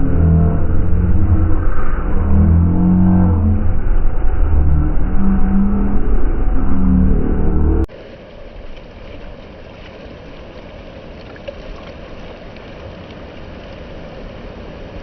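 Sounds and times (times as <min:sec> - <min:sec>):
loud engine: 0:00.0 - 0:07.9
water noise: 0:00.0 - 0:15.0
wind: 0:00.0 - 0:15.0.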